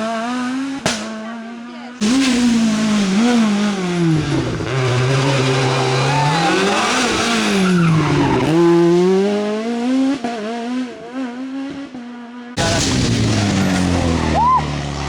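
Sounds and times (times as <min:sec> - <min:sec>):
rally car engine revving: 0:00.0 - 0:15.0
tyres skidding and squealing: 0:01.7 - 0:09.4, 0:12.6 - 0:15.0.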